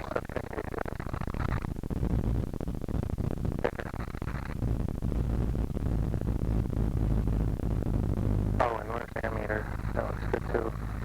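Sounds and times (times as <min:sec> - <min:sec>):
faint radio voice: 0:00.0 - 0:00.9, 0:03.6 - 0:04.0, 0:08.6 - 0:11.0
aircraft engine drone: 0:07.4 - 0:11.0.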